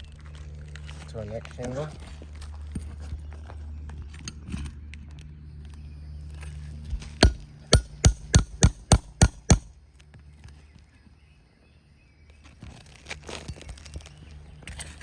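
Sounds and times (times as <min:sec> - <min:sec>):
hammer striking steel: 0:07.2 - 0:09.7.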